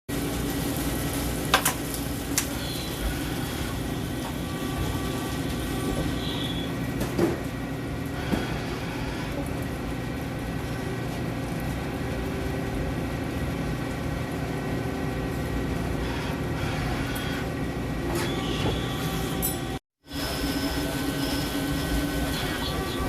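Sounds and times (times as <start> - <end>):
hissing sizzling coolant: 0.1 - 18.1, 20.0 - 23.0
cnc machine motor hum: 20.1 - 23.0.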